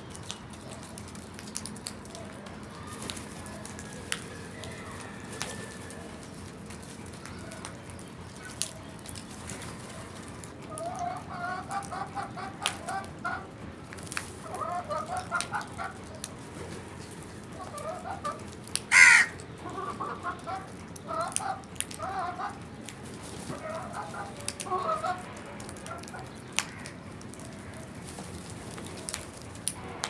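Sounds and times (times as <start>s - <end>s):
crows clucking: 17.6s - 22.6s, 23.5s - 27.9s
crow cawing: 18.9s - 19.4s.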